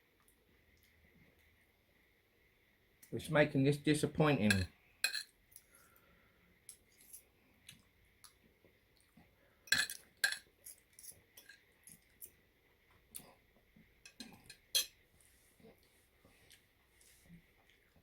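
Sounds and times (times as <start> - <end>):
cutlery clinking against a dish: 4.5 - 5.3, 9.7 - 11.7, 14.1 - 15.0.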